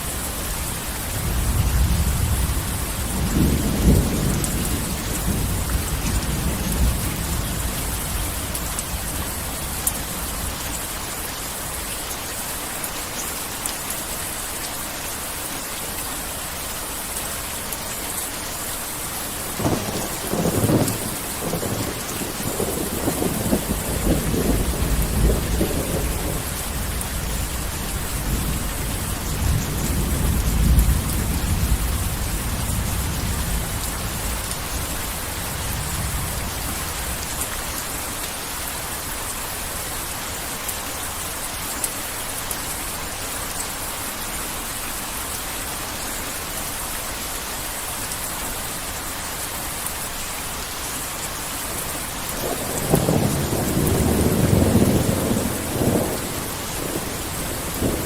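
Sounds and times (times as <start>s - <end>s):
heavy rain pouring: 0.0s - 58.0s
thunder rumbling: 19.5s - 37.2s, 52.4s - 58.0s.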